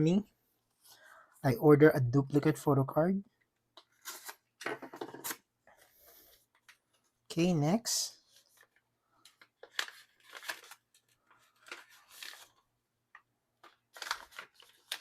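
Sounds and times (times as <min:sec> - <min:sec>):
paper and plastic wrapping rustling: 0:08.4 - 0:12.6, 0:13.6 - 0:15.0.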